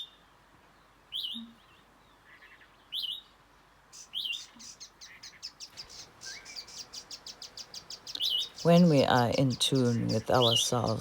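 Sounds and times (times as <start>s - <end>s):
bird alarm calls: 4.0s - 11.0s.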